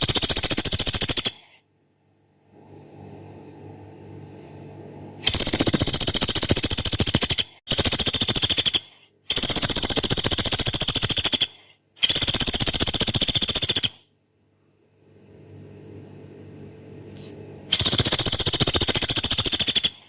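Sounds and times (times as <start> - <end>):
woodpecker rattling calls: 0.0 - 1.5, 5.3 - 14.0, 17.7 - 20.0.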